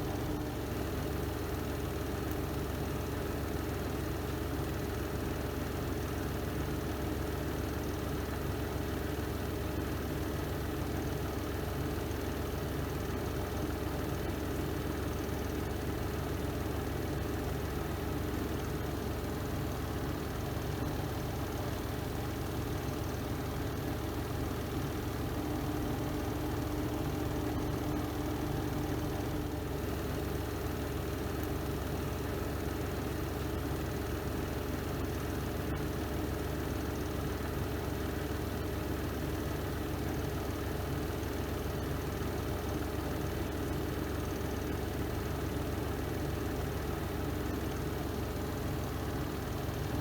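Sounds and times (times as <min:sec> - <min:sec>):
washing machine spinning: 0:10.0 - 0:38.3.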